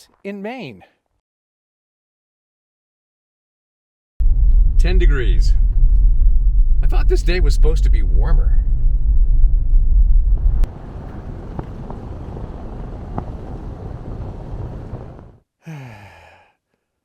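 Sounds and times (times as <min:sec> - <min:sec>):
loud low rumble: 0:04.2 - 0:15.3
steady outdoor noise: 0:04.2 - 0:16.1
man groaning: 0:15.6 - 0:16.5.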